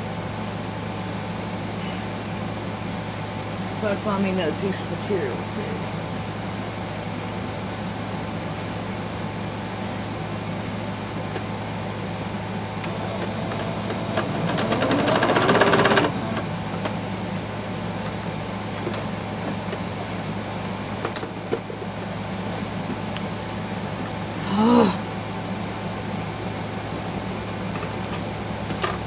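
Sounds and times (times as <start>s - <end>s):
sewing machine stitching: 12.8s - 16.5s.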